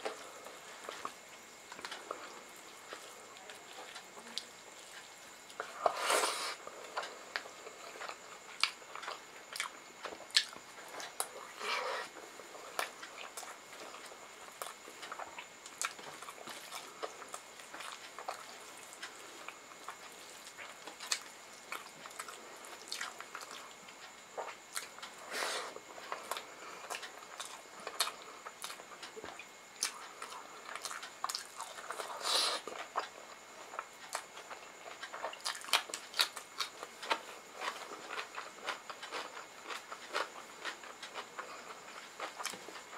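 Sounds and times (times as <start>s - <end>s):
wet chewing: 0.0s - 42.9s.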